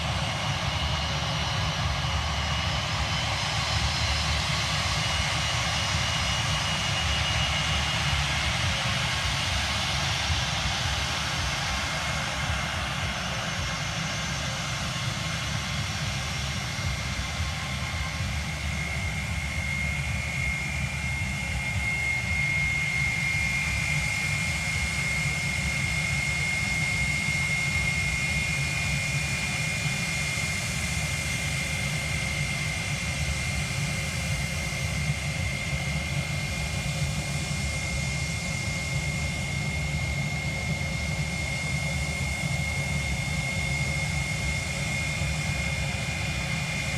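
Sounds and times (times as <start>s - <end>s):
airliner engines running: 0.0s - 46.9s.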